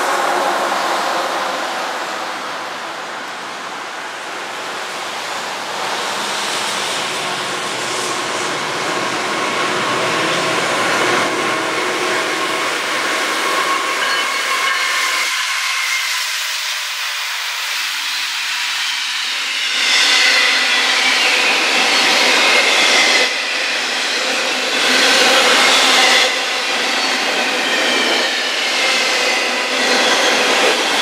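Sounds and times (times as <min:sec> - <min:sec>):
diesel locomotives running: 0:00.0 - 0:15.8
steel wheels rumbling on rails: 0:00.0 - 0:31.0.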